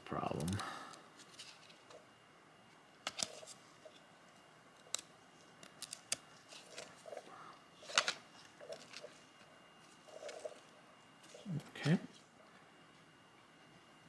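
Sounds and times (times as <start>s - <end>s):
light rustles of cards: 1.2s - 2.0s, 3.0s - 4.0s
cards peeling apart clicks: 4.8s - 6.2s.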